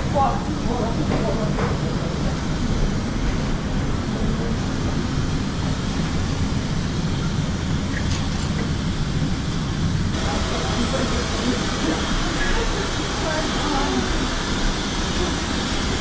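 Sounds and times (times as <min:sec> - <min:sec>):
machinery rumble: 0:00.0 - 0:16.0
hiss: 0:10.1 - 0:16.0.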